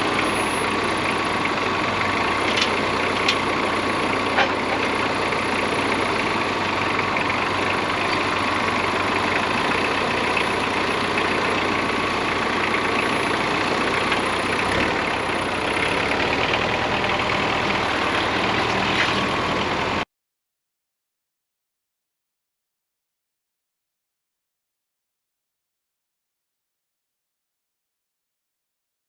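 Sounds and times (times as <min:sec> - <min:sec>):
bandsaw mill droning: 0:00.0 - 0:20.0.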